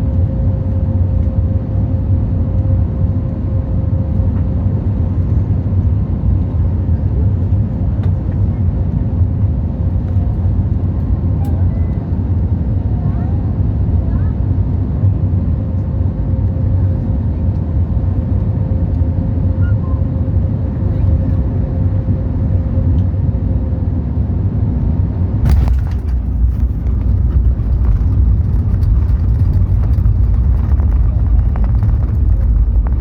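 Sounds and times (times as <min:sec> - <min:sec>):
airliner engines and airflow: 0:00.0 - 0:33.0
rolling roar: 0:25.4 - 0:33.0
wheels hitting runway: 0:25.4 - 0:33.0.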